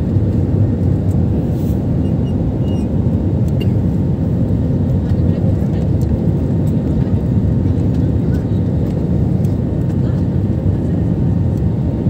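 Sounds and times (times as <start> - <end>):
airliner engines rumbling: 0.0 - 12.0
rushing air in cabin: 0.8 - 2.6.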